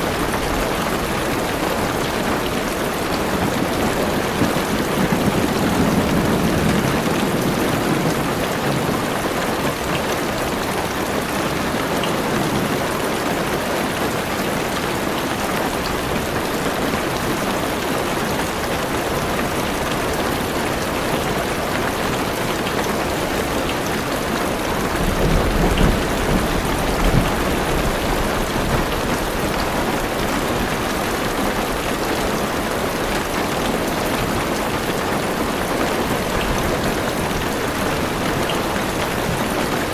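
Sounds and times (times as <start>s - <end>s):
heavy rain on car roof: 0.0s - 39.9s
thunder rumbling: 3.0s - 9.4s, 24.8s - 30.7s.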